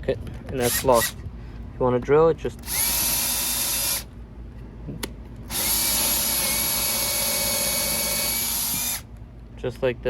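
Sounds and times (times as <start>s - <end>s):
cordless drill whining: 0.6s - 1.2s, 2.6s - 4.1s, 5.5s - 9.0s.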